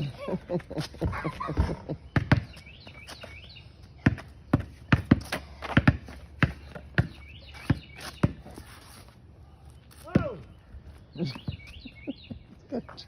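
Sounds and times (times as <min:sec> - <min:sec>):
basketball bouncing: 0:01.0 - 0:02.6, 0:04.0 - 0:08.5.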